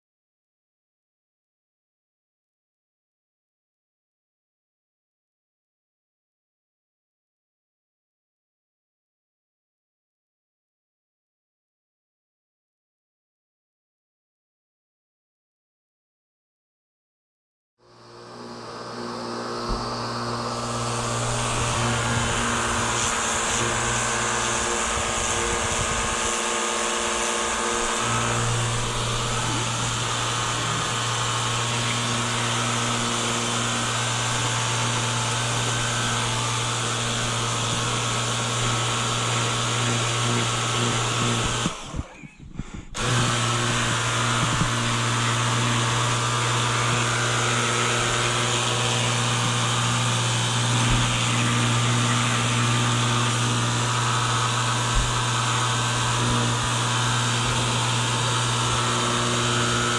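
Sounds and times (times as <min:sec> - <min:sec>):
pressure washer pump humming: 0:18.0 - 0:59.9.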